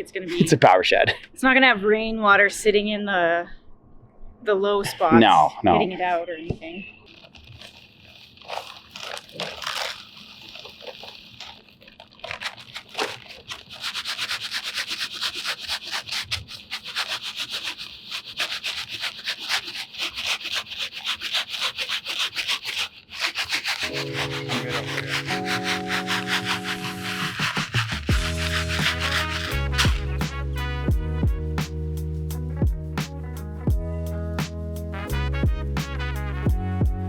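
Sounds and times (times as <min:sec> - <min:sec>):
grit rasping on sifter mesh: 0:07.1 - 0:30.7.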